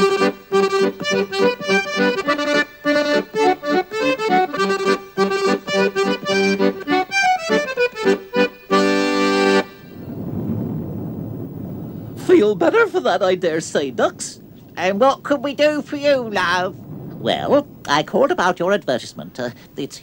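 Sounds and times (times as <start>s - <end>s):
lively accordion tune: 0.0s - 9.9s.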